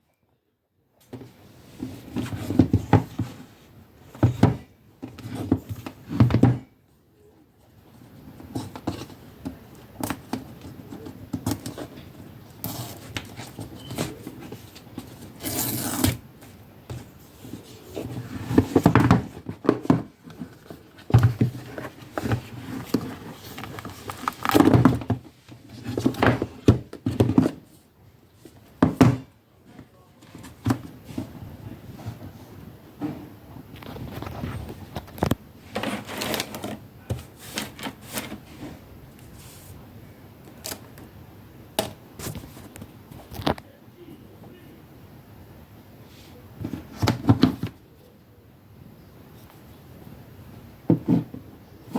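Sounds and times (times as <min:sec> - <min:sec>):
packaging rustling and scraping: 0:10.0 - 0:27.8, 0:33.7 - 0:39.8.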